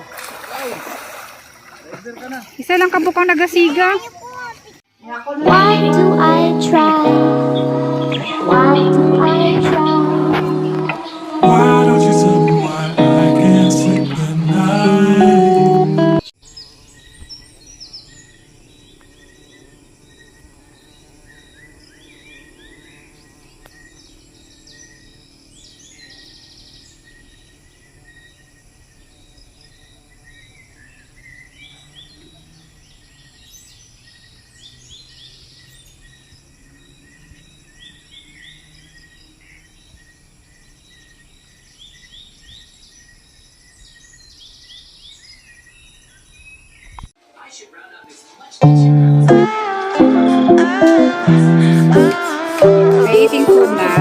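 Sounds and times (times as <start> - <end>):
insects trilling: 16.4 - 43.8
rapid insect chirping: 16.4 - 44.9.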